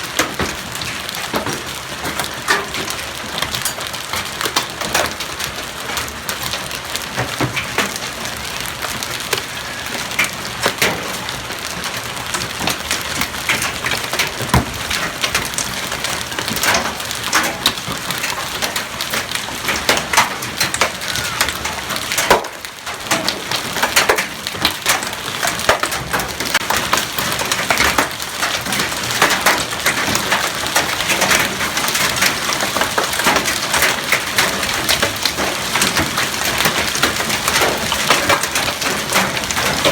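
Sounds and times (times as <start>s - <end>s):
hailstones clattering: 0.0s - 39.9s.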